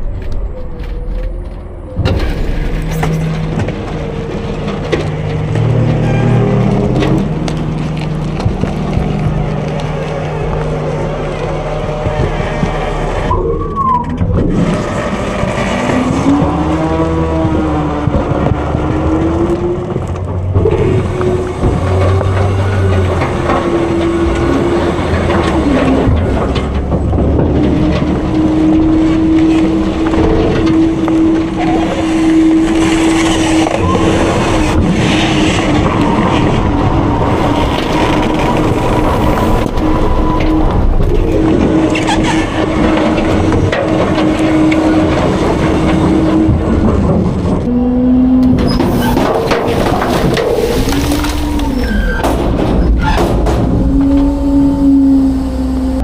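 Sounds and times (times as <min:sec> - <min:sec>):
hydraulic packer whine: 0:00.0 - 0:56.0
truck engine rumble: 0:00.0 - 0:56.0
garbage truck hydraulic whine: 0:47.6 - 0:56.0
metal knocks: 0:52.0 - 0:54.4.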